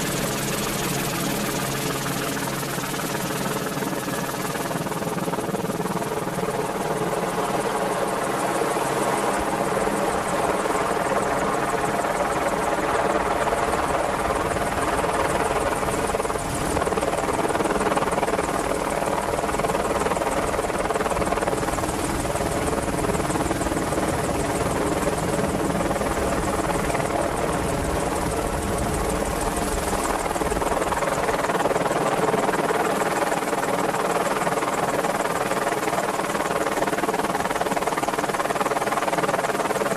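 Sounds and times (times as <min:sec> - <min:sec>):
helicopter running: 0:00.0 - 0:39.9.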